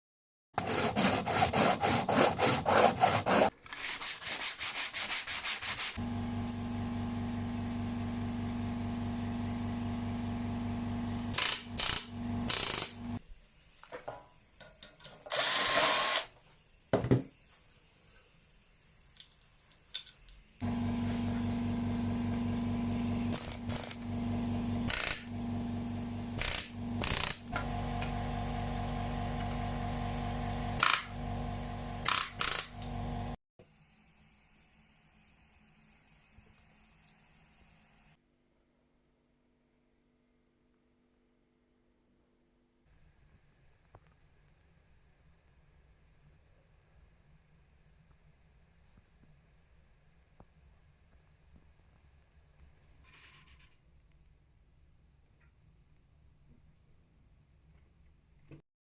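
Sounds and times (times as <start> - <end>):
power tool strokes: 15.3 - 16.3.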